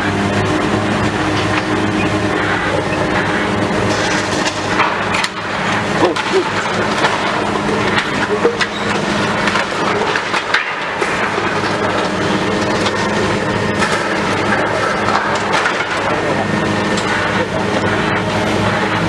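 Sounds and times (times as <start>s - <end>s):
demolition machinery running: 0.0s - 19.0s
debris cracking and knocking: 3.9s - 17.9s.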